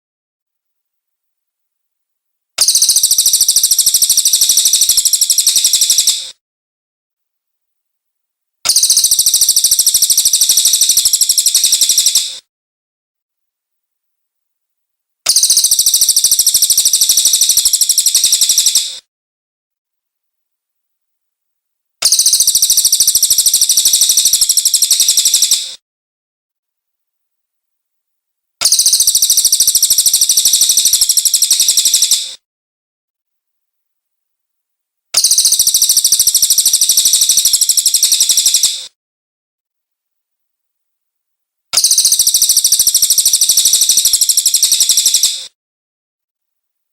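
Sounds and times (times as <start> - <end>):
bird high-pitched trill: 2.6 - 6.3, 8.7 - 12.4, 15.3 - 19.0, 22.0 - 25.8, 28.6 - 32.4, 35.2 - 38.9, 41.8 - 45.5.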